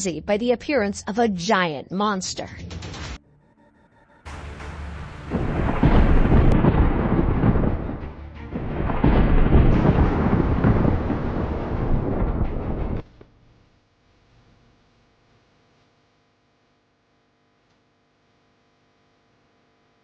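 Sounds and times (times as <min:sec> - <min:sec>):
loud rough rumbling: 0:04.3 - 0:13.0.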